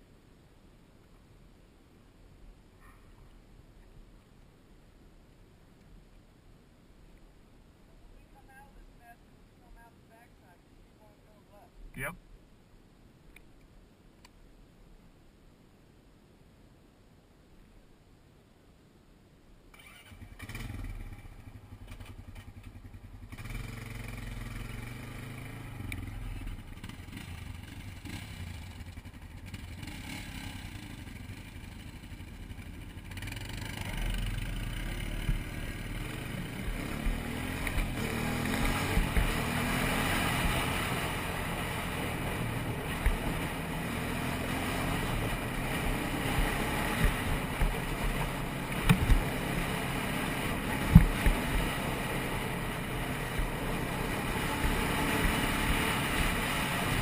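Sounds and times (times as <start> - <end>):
wind and trail noise: 0.0 - 57.0
quad engine running: 19.8 - 57.0.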